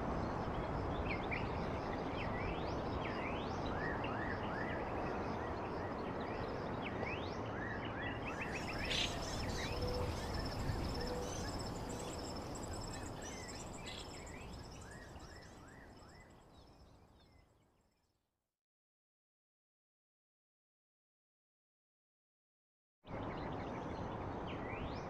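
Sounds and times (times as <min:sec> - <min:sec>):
birds chirping: 0:08.3 - 0:15.6
insect trill: 0:08.3 - 0:17.4.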